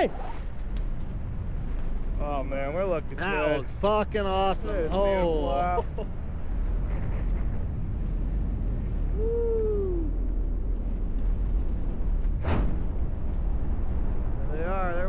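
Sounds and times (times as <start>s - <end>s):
sharp wind gust: 0.0s - 15.0s
wind rushing over microphone: 0.0s - 15.0s
person whooping: 9.1s - 10.3s.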